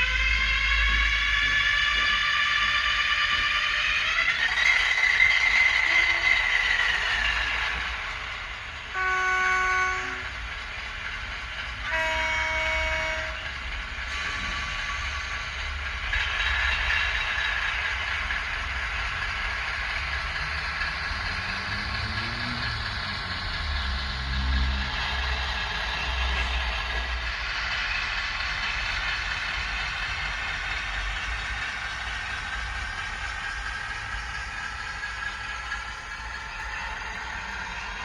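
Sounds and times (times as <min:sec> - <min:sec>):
diesel locomotive engine running: 0:00.0 - 0:38.0
two-tone locomotive horn: 0:05.8 - 0:06.5, 0:08.9 - 0:10.4, 0:11.8 - 0:13.5.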